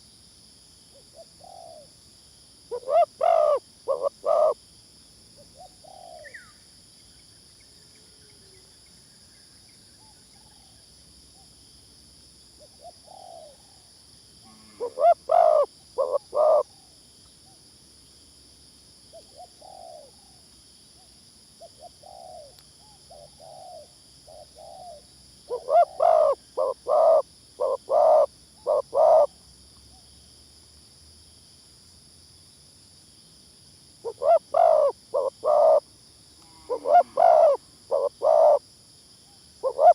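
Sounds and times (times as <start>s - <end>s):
doves cooing: 2.7s - 4.6s, 14.7s - 16.6s, 23.2s - 29.3s, 34.1s - 35.8s, 36.7s - 38.6s, 39.6s - 39.9s.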